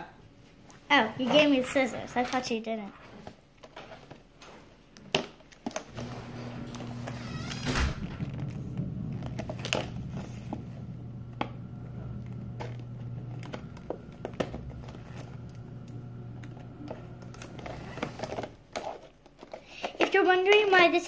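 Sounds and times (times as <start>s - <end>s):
steady low hum: 5.9s - 18.5s
plastic packaging crinkling: 8.1s - 20.8s.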